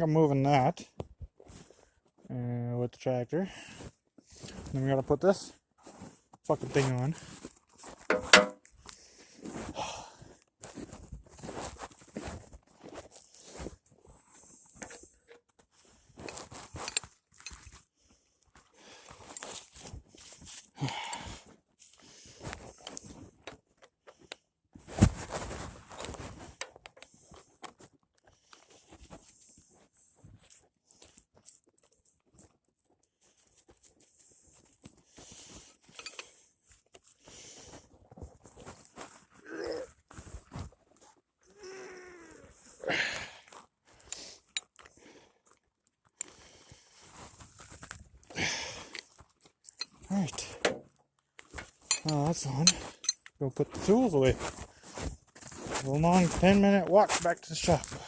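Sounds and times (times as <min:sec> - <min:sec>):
knocks and scraping: 0:07.8 - 0:08.7, 0:51.5 - 0:54.2
sharp knock: 0:08.1 - 0:08.6
crunching steps in snow: 0:10.6 - 0:13.8, 0:53.7 - 0:58.0.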